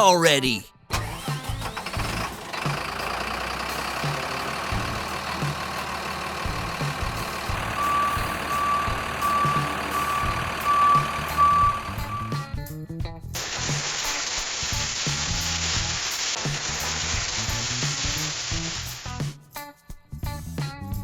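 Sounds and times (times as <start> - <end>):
heavy truck engine running: 0.9 - 12.4
reversing alarm beeping: 7.5 - 12.4.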